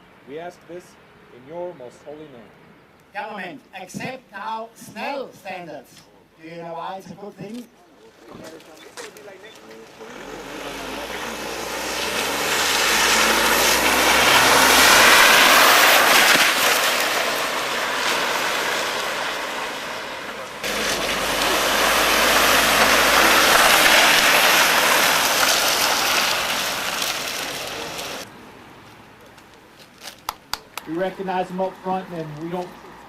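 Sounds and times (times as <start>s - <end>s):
motorcycles riding past: 9.6s - 28.3s.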